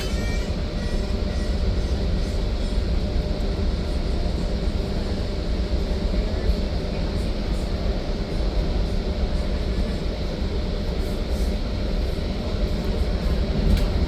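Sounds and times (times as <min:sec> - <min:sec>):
train rumble from inside car: 0:00.0 - 0:14.0.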